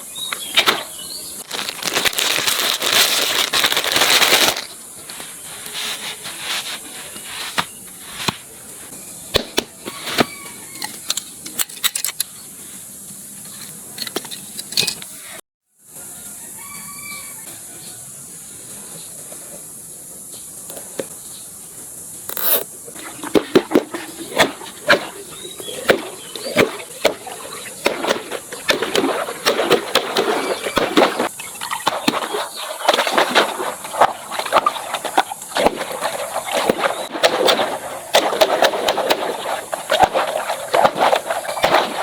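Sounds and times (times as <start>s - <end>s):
steady hiss: 0.0s - 9.2s.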